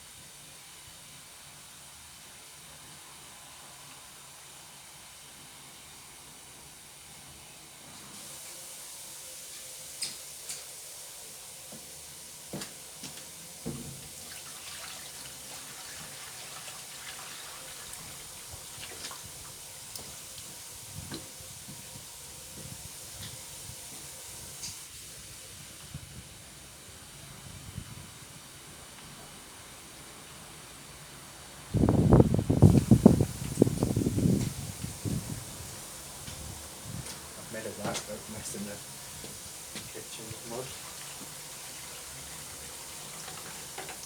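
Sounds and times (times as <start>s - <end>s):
tap water filling a jug: 11.7s - 24.9s, 36.2s - 44.0s.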